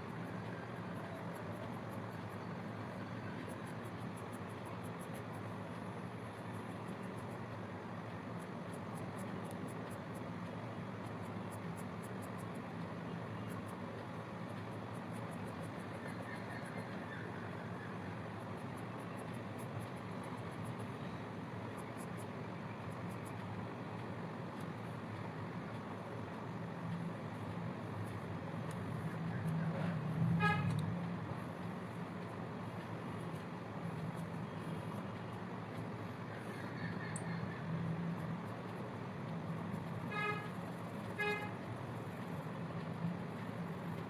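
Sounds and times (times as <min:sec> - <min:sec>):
background traffic noise: 0:00.0 - 0:44.0
vehicle horn tooting: 0:30.4 - 0:30.7, 0:40.1 - 0:40.5, 0:41.2 - 0:41.6.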